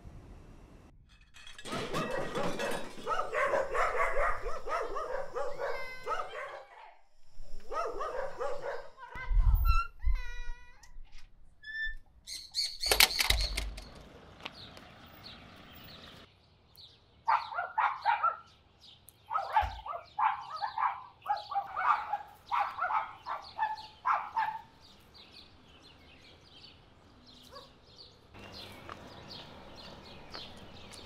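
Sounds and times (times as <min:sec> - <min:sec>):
small birds chirping: 0:11.8 - 0:31.0.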